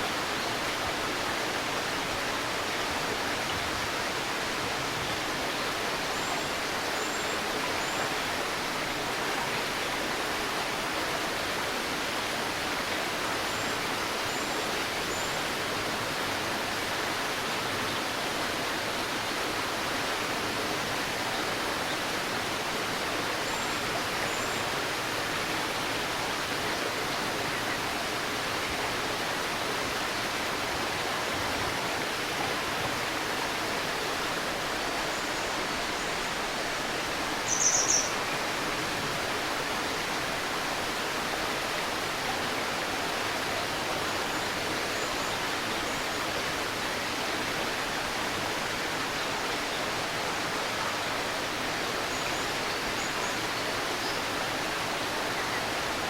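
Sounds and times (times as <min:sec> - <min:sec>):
river rushing and babbling: 0:00.0 - 0:56.0
faint high bird chirps: 0:37.5 - 0:38.2.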